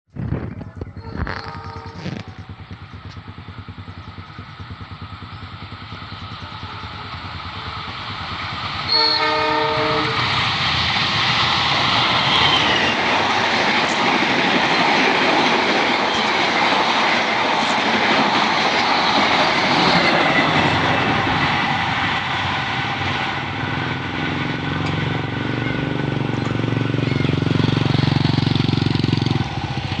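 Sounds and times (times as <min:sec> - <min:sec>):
passenger train passing: 0:00.5 - 0:30.0
wheels clattering on rails: 0:00.5 - 0:30.0
locomotive horn blast: 0:01.0 - 0:02.5, 0:06.4 - 0:07.4, 0:08.9 - 0:10.3.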